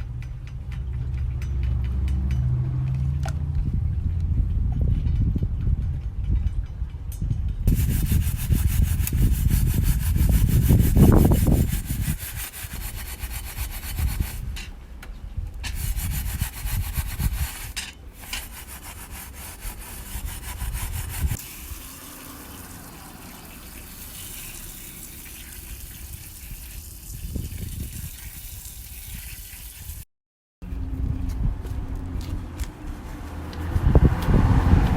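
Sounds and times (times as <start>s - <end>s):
heavy low rumble: 0.0s - 12.2s, 30.6s - 34.9s
scrubbing on metal fire pit: 7.7s - 14.7s, 15.7s - 22.5s.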